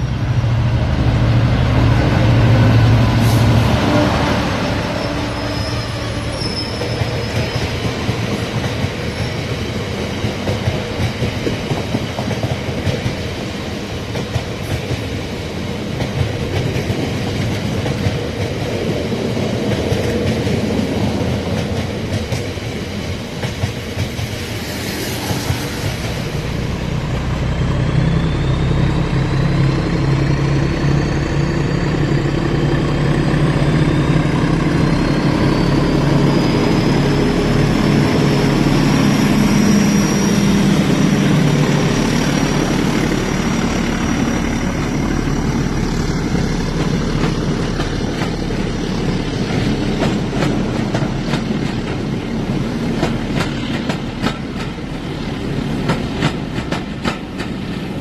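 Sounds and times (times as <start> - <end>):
wheels clicking over rail joints: 55.8 - 58.0.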